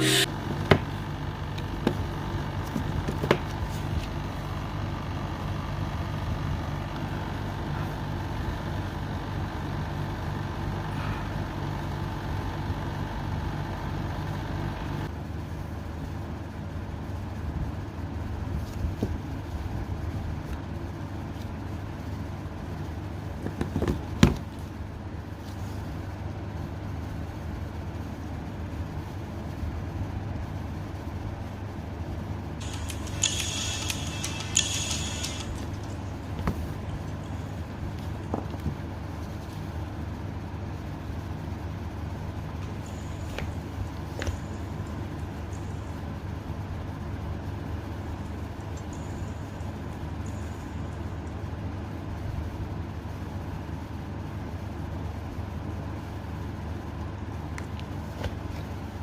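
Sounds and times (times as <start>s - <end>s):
low background hum: 0.0s - 59.0s
short clicks: 32.6s - 35.9s.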